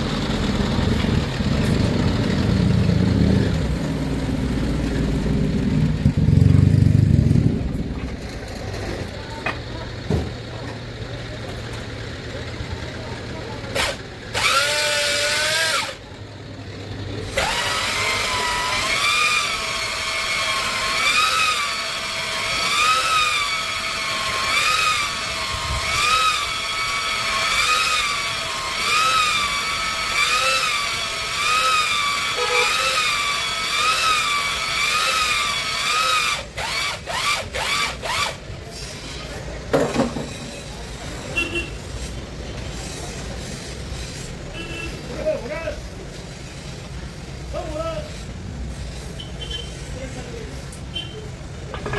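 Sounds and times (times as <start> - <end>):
electric drill motor whine: 13.8 - 16.0, 17.3 - 38.4.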